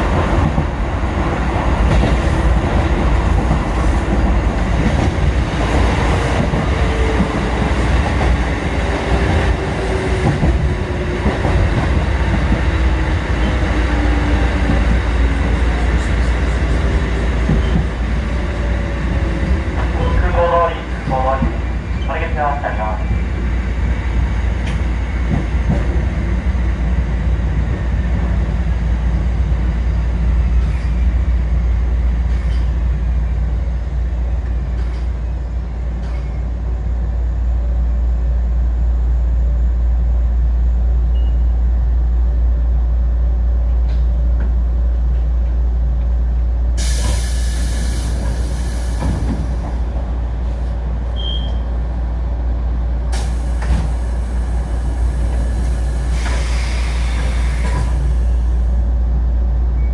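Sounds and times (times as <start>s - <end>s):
train rumbling on rails: 0.0s - 59.9s
loud hiss of air: 46.8s - 49.6s, 53.1s - 58.7s.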